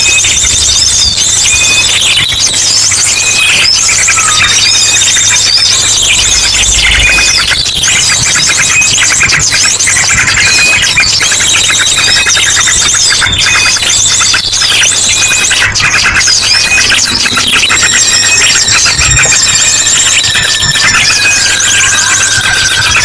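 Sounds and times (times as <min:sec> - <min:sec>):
chorus of small birds chattering: 0:00.0 - 0:23.0
drongo calls: 0:00.0 - 0:23.0
long fast bird trill: 0:00.0 - 0:23.0.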